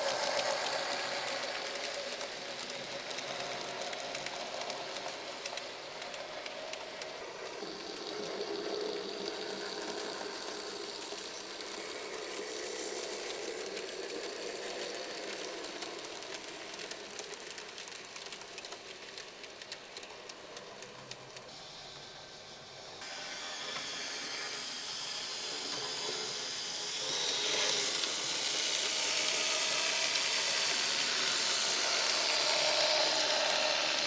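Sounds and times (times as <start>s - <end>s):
fine rapid clicks: 0.0s - 21.6s
model train motors humming: 0.0s - 34.0s.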